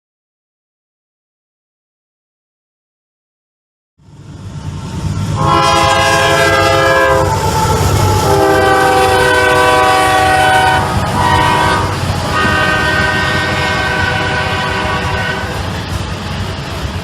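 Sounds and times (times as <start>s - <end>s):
passing train rumble: 4.0s - 17.0s
locomotive air horn blasts: 5.4s - 15.7s.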